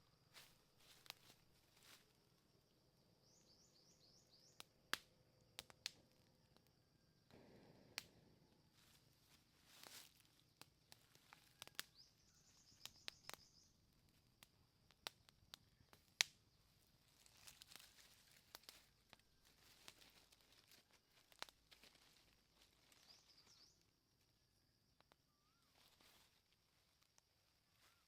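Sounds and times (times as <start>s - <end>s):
faint clicks and crackles: 0.3s - 2.1s, 4.5s - 28.0s
bird chirping: 3.2s - 4.6s, 11.3s - 13.8s, 22.9s - 23.9s.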